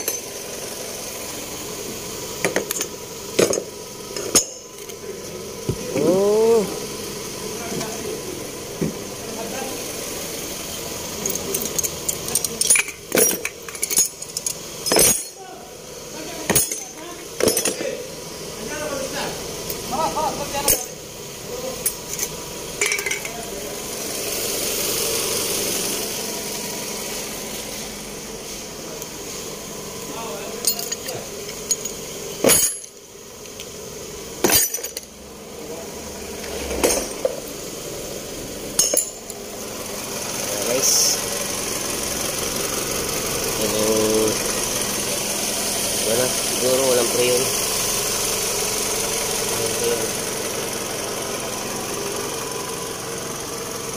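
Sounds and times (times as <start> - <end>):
metal pieces clinking and jangling: 11.2 - 15.4, 16.5 - 17.9, 20.5 - 21.0, 21.8 - 23.4, 30.6 - 33.0, 34.4 - 35.1, 38.8 - 39.4.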